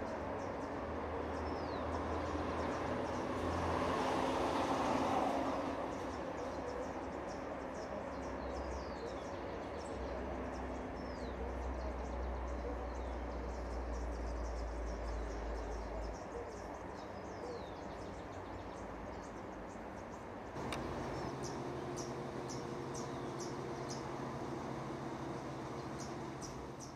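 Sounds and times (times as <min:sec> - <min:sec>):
small birds chirping: 0:00.0 - 0:03.6, 0:05.8 - 0:26.9
click: 0:20.6 - 0:21.5
low hum: 0:20.6 - 0:26.9.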